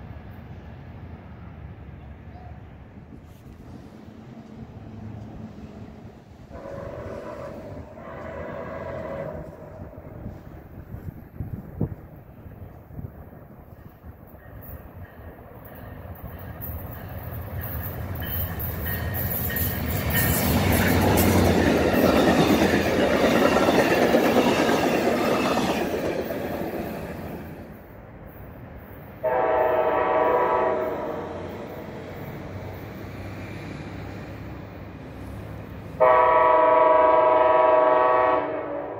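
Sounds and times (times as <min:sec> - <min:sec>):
train wheels on rails: 0:00.0 - 0:38.9
train horn blast: 0:06.5 - 0:09.9, 0:29.2 - 0:31.6, 0:36.0 - 0:38.9.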